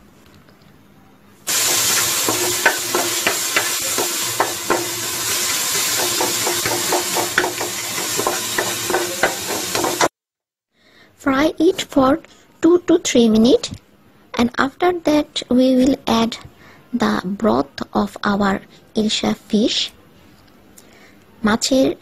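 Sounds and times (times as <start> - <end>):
paste sizzling in hot oil: 1.5 - 10.1
spatula scraping metal pot: 1.5 - 10.1.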